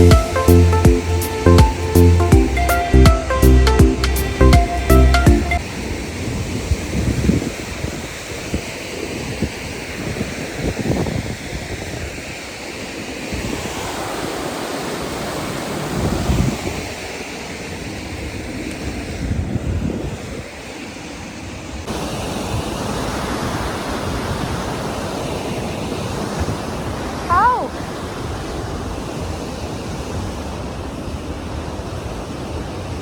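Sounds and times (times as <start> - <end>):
rushing water: 0.0 - 33.0
wind buffeting microphone: 5.6 - 20.6.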